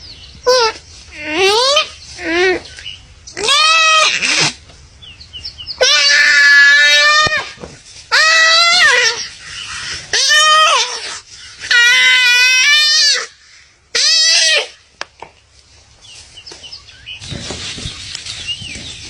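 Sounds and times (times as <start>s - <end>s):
animal bleating in distress: 0.4s - 2.7s, 3.3s - 4.6s, 5.8s - 9.3s, 10.1s - 11.1s, 13.9s - 14.8s.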